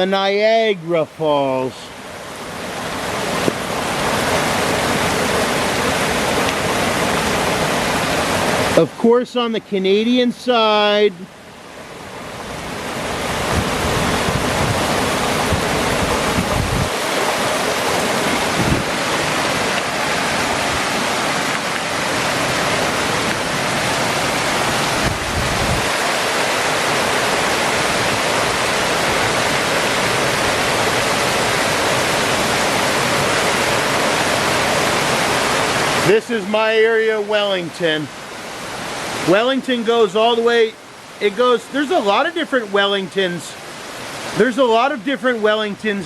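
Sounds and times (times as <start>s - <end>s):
heavy rain pouring: 0.0s - 46.0s
wind buffeting microphone: 12.4s - 21.4s, 22.1s - 30.6s.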